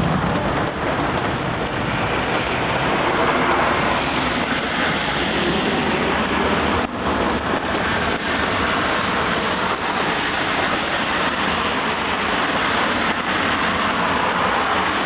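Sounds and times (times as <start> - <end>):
traffic noise: 0.0 - 15.0
tyres hissing on wet asphalt: 0.0 - 15.0.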